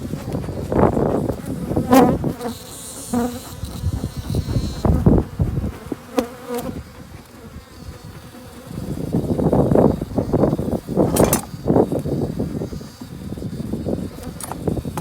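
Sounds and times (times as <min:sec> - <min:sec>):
honeybees buzzing: 0:00.0 - 0:15.0
sharp clicks and knocks: 0:11.1 - 0:11.6, 0:14.2 - 0:15.0.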